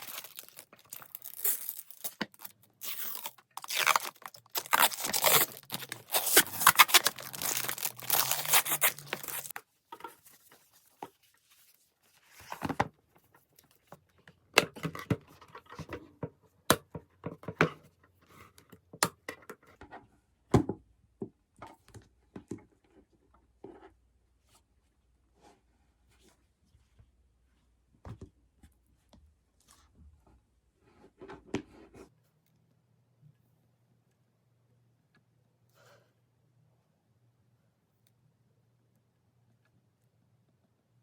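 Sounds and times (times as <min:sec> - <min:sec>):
packaging tearing and crinkling: 0:00.0 - 0:09.5.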